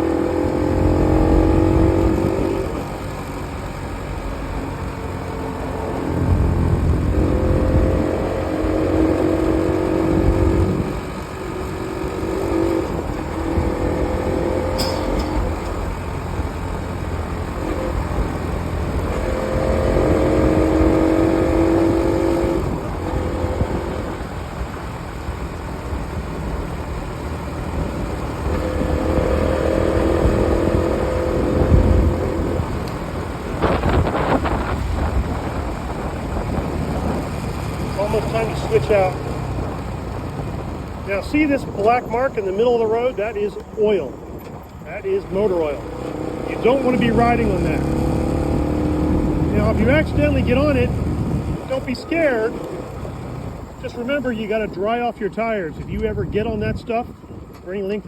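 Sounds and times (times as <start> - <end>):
motorcycle engine running: 0.0 - 42.9, 43.9 - 54.2
wind on microphone: 27.7 - 41.0, 47.9 - 51.7.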